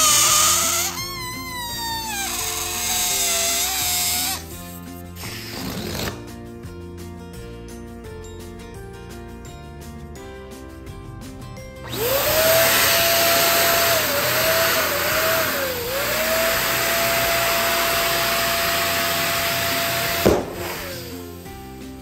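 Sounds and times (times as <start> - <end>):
electric balloon pump whining: 0.0 - 6.2, 11.8 - 22.0
hissing rush of air: 20.3 - 22.0.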